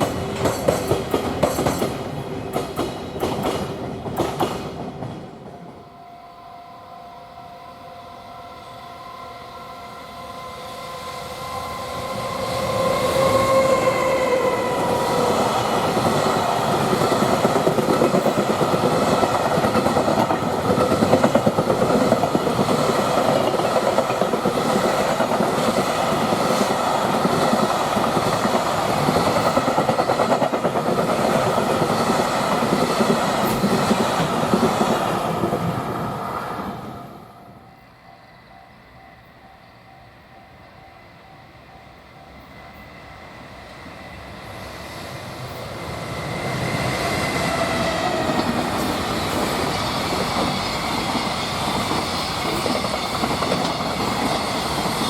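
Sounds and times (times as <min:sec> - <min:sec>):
train wagons clickety-clack: 0:00.0 - 0:05.7, 0:12.8 - 0:35.8, 0:46.5 - 0:55.0
locomotive whine: 0:04.7 - 0:55.0.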